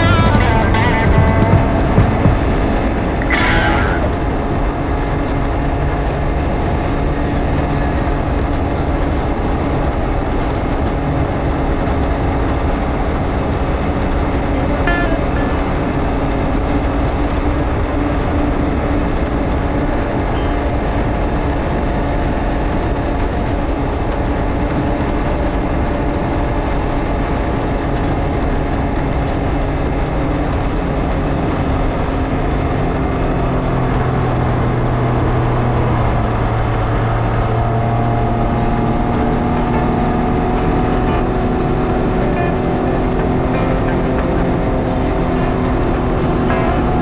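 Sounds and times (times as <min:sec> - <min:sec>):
engine running steadily: 0:00.0 - 0:47.0
wind and road noise: 0:00.0 - 0:47.0.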